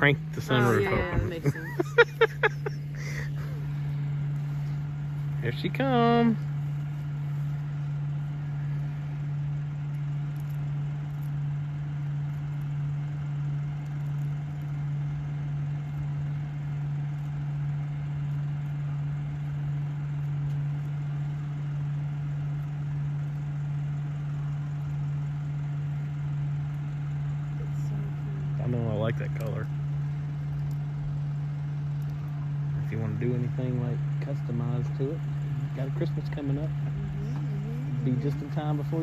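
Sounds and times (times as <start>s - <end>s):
vehicle engine idling: 0.0s - 39.0s.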